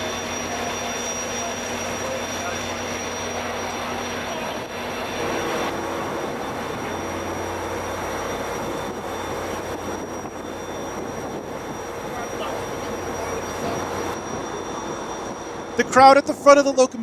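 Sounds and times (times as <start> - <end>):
locomotive engine rumble: 0.0 - 17.0
thin high whine: 0.0 - 17.0.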